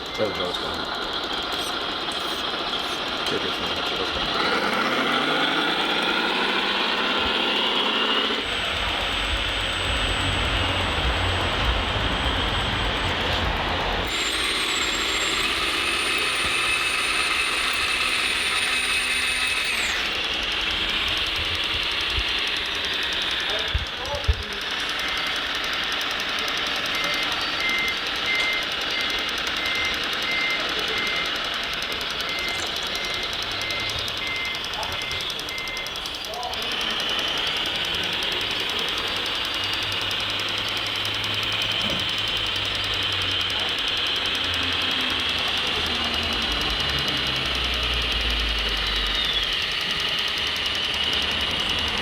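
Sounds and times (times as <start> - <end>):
mechanical whir with low rumble: 0.0 - 52.0
reversing alarm beeping: 0.0 - 52.0
thin high whine: 1.4 - 25.3.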